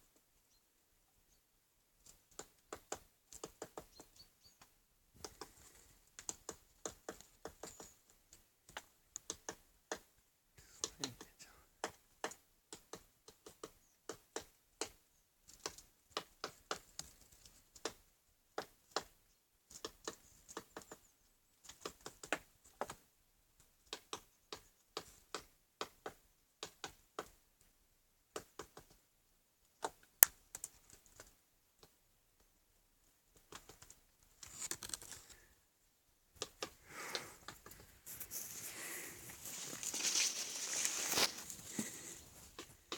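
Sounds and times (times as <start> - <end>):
woodpecker tapping on wood: 2.0 - 23.0, 23.6 - 27.4, 28.3 - 29.0, 33.4 - 34.0, 36.4 - 38.2
rustling: 33.4 - 35.6, 36.4 - 42.9.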